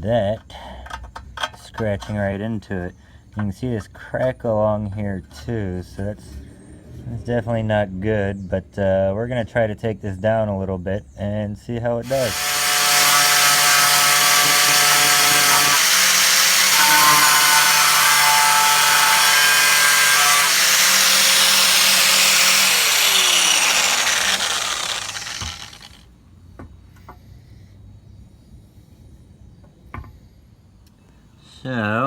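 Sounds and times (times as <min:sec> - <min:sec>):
power grinder grinding metal: 0:12.0 - 0:26.0.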